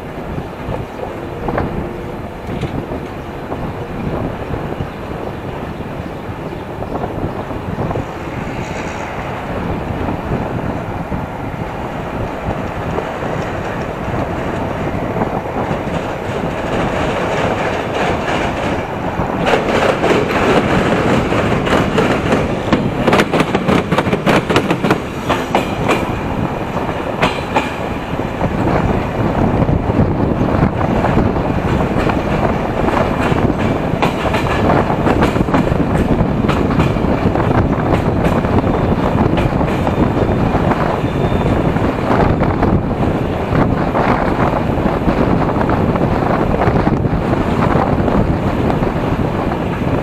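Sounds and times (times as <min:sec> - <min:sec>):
train wheels rushing on rail: 0:00.0 - 0:50.0
wheels clattering over rail joints: 0:00.0 - 0:50.0.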